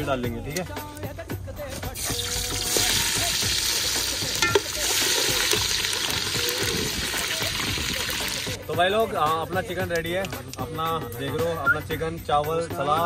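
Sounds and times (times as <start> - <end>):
chicken sizzling in a pot: 2.0 - 8.6.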